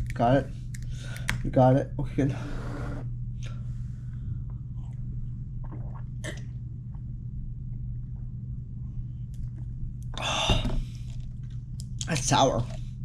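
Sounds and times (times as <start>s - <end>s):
washing machine hum: 0.0s - 13.0s
person drinking and swallowing: 4.5s - 7.2s
breathy exhale: 10.2s - 11.0s.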